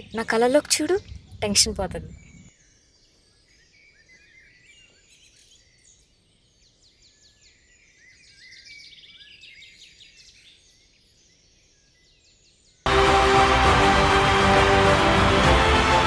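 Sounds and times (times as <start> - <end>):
birds chirping: 0.0 - 12.1.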